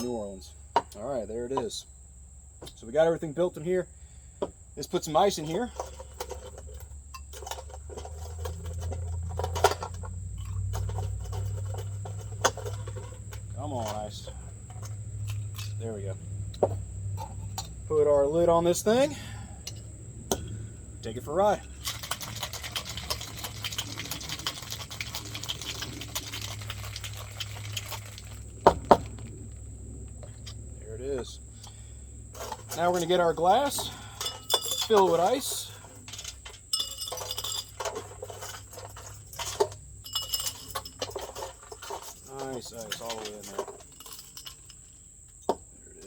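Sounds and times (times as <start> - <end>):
low steady hum: 0.0 - 46.0
ice cubes clinking in shaker: 21.8 - 28.5, 32.4 - 44.7.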